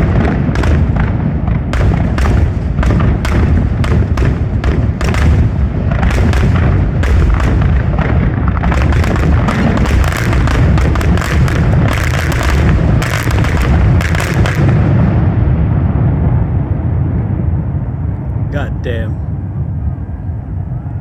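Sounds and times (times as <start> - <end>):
sharp firework bangs: 0.0 - 15.8
rumble of firework booms: 0.0 - 20.6.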